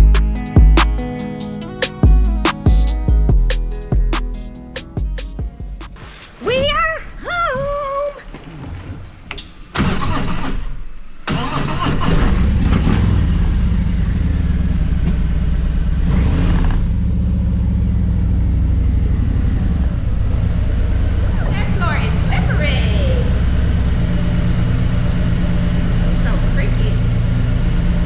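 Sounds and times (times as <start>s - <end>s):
motorcycle engine cranking and idling: 9.3s - 28.0s.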